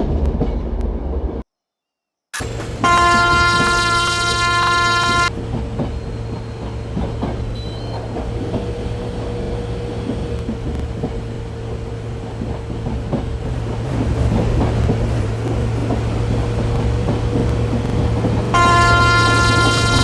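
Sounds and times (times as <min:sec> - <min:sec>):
train rumbling: 0:00.0 - 0:01.4, 0:02.4 - 0:20.0
train horn blast: 0:02.4 - 0:05.4, 0:18.5 - 0:20.0.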